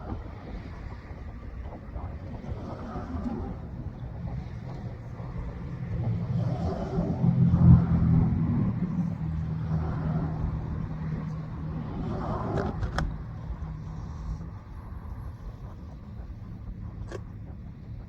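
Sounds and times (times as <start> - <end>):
vehicle engine passing by: 5.1 - 16.0.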